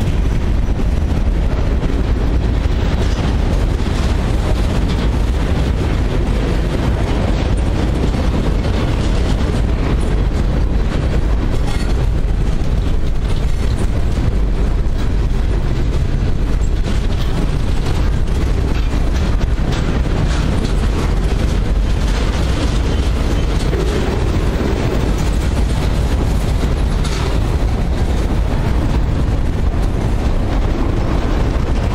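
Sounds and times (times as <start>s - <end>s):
steel train wheels on rails: 0.0s - 31.9s.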